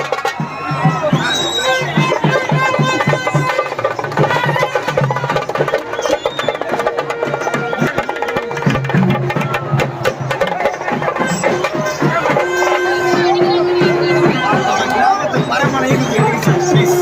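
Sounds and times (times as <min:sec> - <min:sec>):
fast drum strokes: 0:00.0 - 0:17.0
held melodic line: 0:07.2 - 0:17.0.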